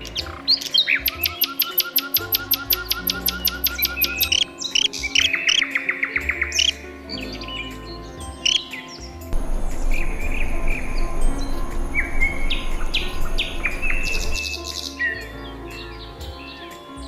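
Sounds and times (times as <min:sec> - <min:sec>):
soft background music: 0:00.0 - 0:17.0
songbirds chirping: 0:00.0 - 0:17.0
steady hiss: 0:09.4 - 0:14.4.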